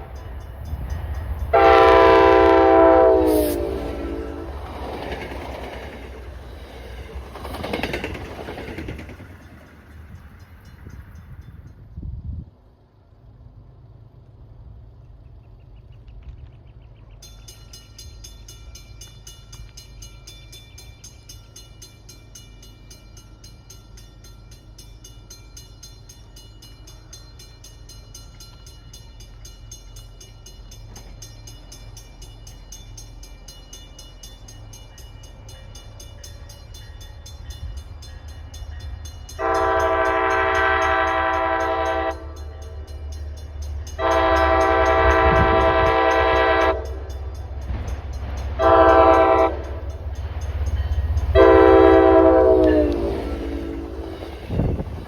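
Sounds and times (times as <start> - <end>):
train rumble: 0.0 - 55.0
train air horn blasts: 1.5 - 4.8, 39.4 - 42.8, 44.0 - 47.2, 48.6 - 49.9, 51.3 - 54.8.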